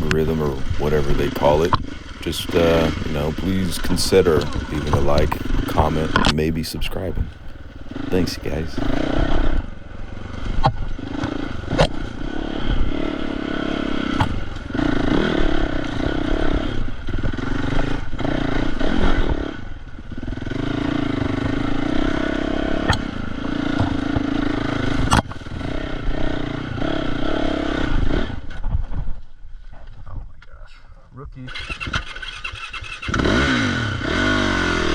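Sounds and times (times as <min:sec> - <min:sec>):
dirt bike engine revving: 0:00.0 - 0:09.4, 0:31.7 - 0:34.9.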